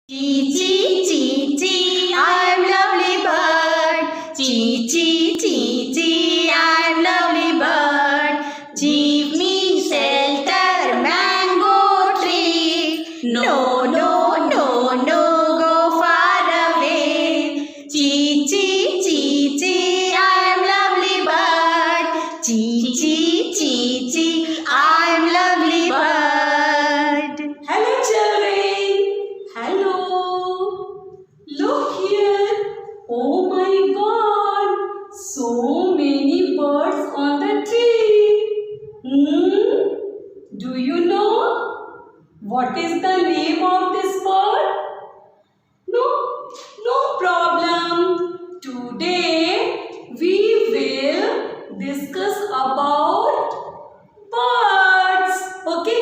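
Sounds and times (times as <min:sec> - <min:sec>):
high voice singing: 0:00.1 - 0:30.8.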